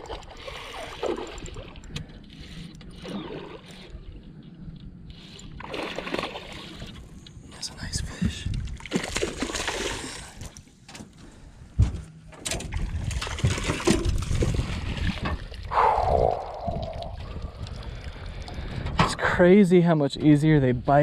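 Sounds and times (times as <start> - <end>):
water splashing around boat: 0.0 - 4.4, 5.2 - 7.2, 8.5 - 10.9, 12.2 - 19.4.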